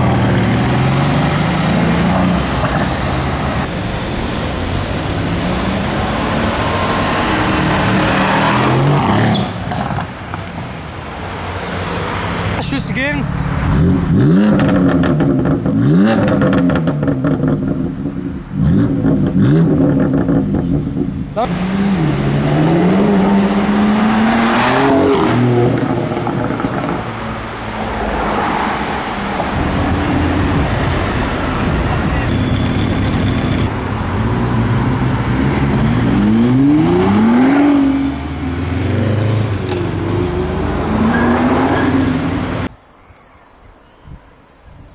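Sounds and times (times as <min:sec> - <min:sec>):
traffic noise: 0:00.0 - 0:44.9
car engine accelerating hard: 0:18.6 - 0:32.2, 0:34.1 - 0:42.7.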